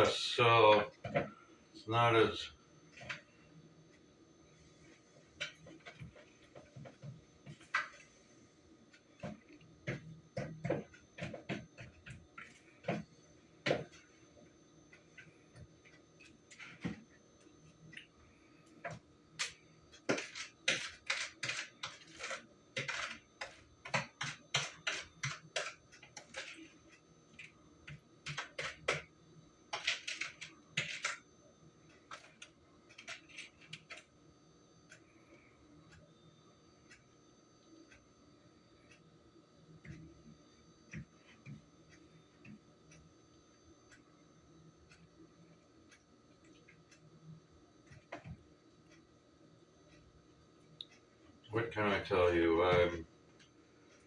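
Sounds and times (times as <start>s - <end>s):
utensil scraping mixing bowl: 20.0s - 26.8s.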